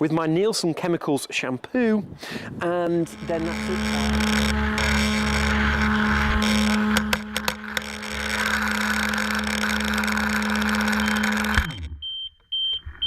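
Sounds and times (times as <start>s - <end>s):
sharp clicks: 2.8s - 12.8s
motor running: 2.9s - 12.0s.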